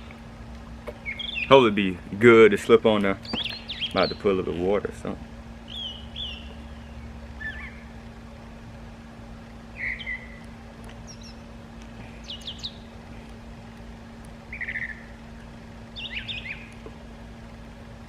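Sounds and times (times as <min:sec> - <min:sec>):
birds chirping: 0:00.0 - 0:18.0
steady low hum: 0:00.0 - 0:18.0.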